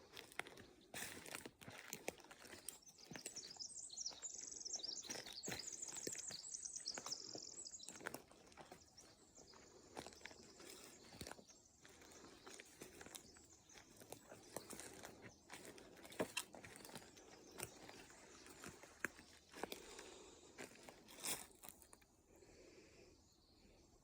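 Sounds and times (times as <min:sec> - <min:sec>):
footsteps crackling on forest floor: 0:00.0 - 0:22.1
songbird trilling: 0:02.9 - 0:15.6.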